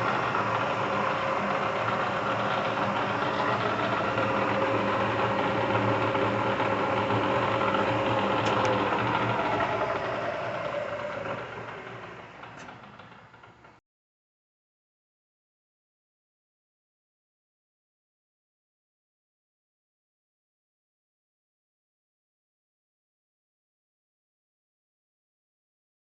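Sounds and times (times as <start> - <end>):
milling machine running: 0.0 - 13.8.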